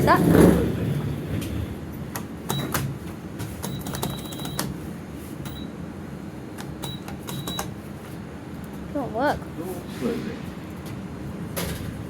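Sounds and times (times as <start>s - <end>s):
short high-pitched beeps: 3.6s - 4.6s, 5.4s - 5.8s, 6.8s - 7.7s.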